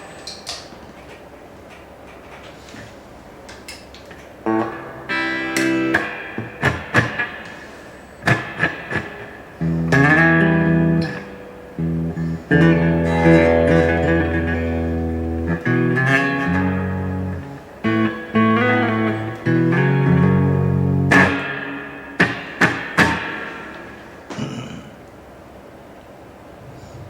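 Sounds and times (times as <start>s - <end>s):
electric guitar chords ringing out: 4.4s - 24.7s.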